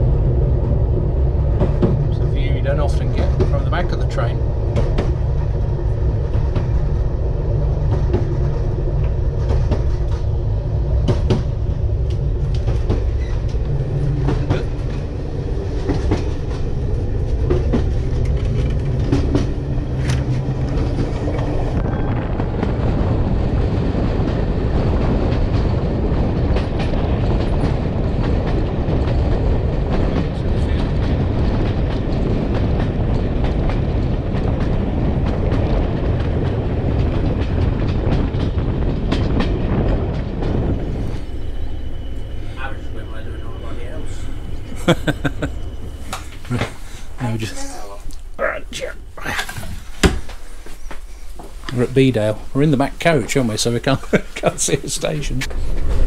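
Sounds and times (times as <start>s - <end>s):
train rumbling: 0.0s - 56.0s
wheels clicking over rail joints: 7.8s - 21.8s.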